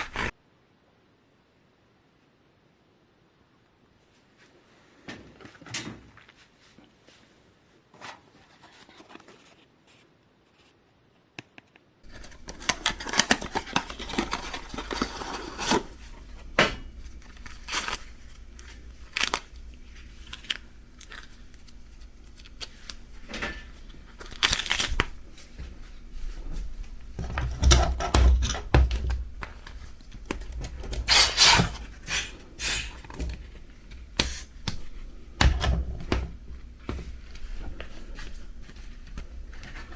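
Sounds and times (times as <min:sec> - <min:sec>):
packaging crinkling and tearing: 0:12.1 - 0:26.0.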